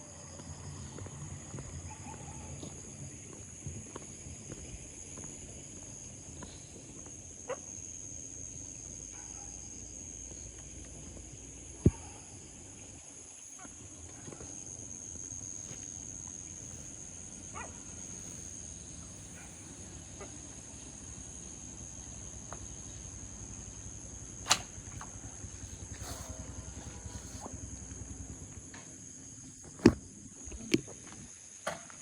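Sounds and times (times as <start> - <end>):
high-pitched insect drone: 0.0 - 29.8.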